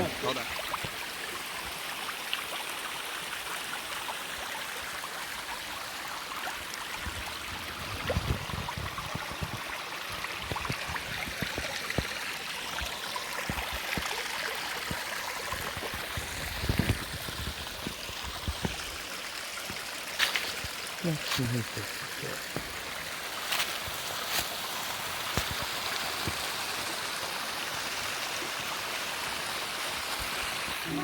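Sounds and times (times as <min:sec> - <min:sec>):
waterfall rushing: 0:00.0 - 0:01.6, 0:07.0 - 0:26.8, 0:28.7 - 0:31.0
creek water running over rocks: 0:00.0 - 0:31.0.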